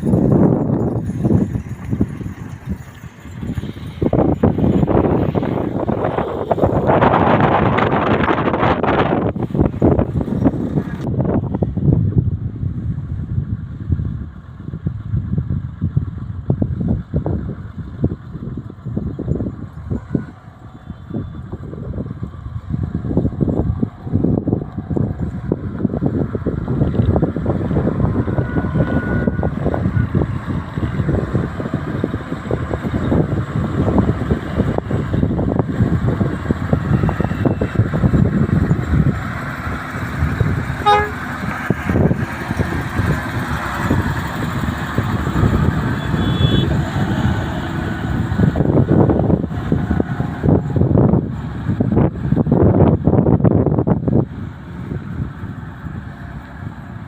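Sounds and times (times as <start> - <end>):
knocks and rattles: 0.0 - 5.8
diesel truck engine rumbling: 0.0 - 57.0
road noise: 0.0 - 57.0.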